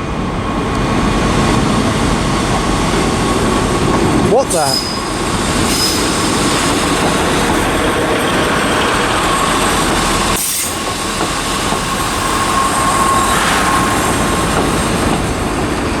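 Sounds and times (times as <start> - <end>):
train rumble: 0.0 - 16.0
train wheel squeal: 4.5 - 15.8.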